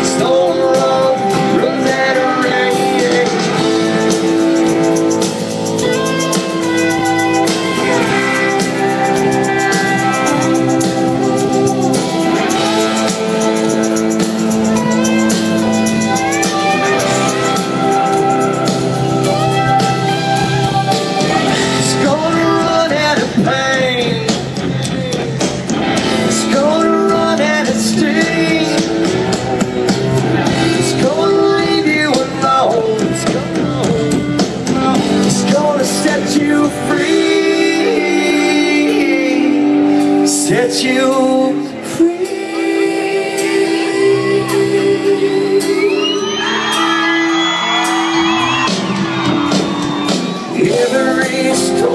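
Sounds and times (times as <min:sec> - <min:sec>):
country-rock band playing: 0:00.0 - 0:51.9
lead guitar solo: 0:03.2 - 0:22.0, 0:45.6 - 0:50.6.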